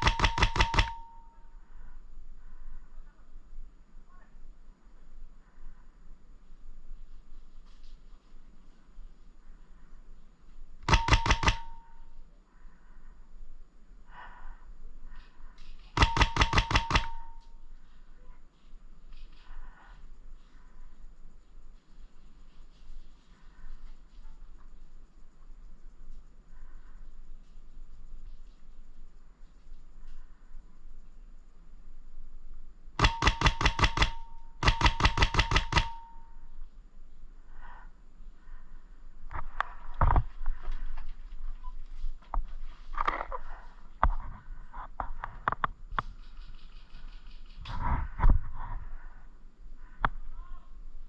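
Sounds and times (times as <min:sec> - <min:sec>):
airsoft gun firing burst: 0:00.0 - 0:01.3, 0:10.8 - 0:12.0, 0:16.0 - 0:17.5, 0:33.0 - 0:36.3
faint whine: 0:00.0 - 0:51.0.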